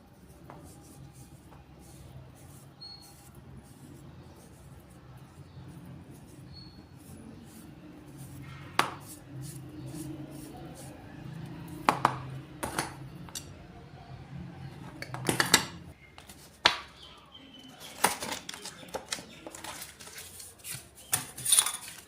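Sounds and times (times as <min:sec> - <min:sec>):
hard objects clinking and knocking: 0:14.9 - 0:16.9, 0:20.8 - 0:22.0.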